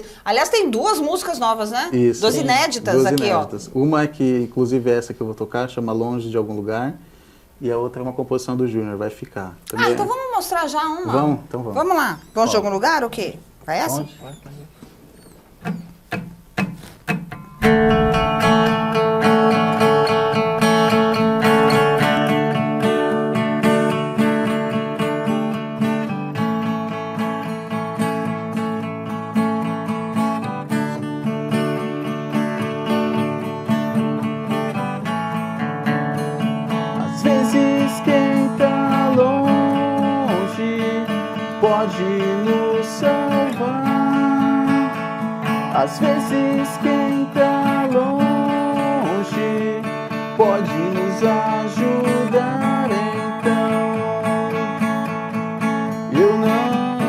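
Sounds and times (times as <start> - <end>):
acoustic guitar percussive strokes: 13.8 - 57.0
acoustic guitar strummed chords: 15.6 - 57.0.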